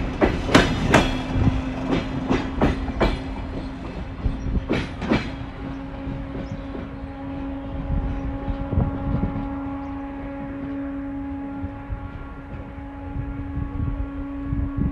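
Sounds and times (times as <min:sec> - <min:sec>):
train wheels clacking over rail joints: 0:00.0 - 0:08.6.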